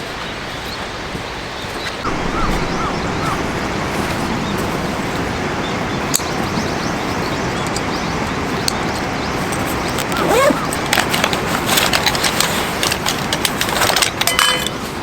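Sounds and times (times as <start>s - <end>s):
steady rushing outdoor noise: 0.0s - 15.0s
small bird chirping: 1.8s - 8.1s.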